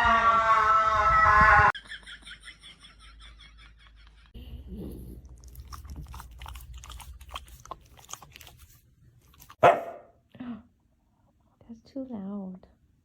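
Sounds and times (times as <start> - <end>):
dog crunching and chewing: 5.0 - 9.9
dog barking: 9.6 - 10.2.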